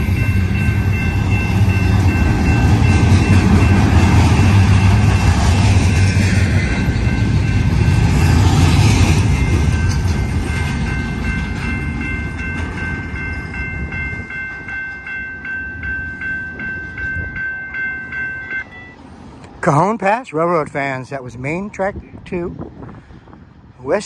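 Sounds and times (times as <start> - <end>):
crossing warning bell ringing: 0.0 - 19.2
freight train rumbling past: 0.0 - 24.0.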